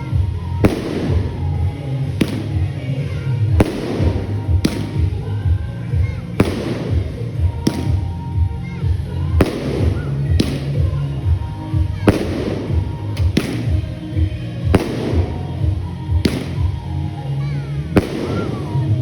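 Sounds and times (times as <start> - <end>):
fireworks bangs: 0.0 - 17.3, 18.0 - 19.0
music with heavy bass beat: 3.6 - 17.1.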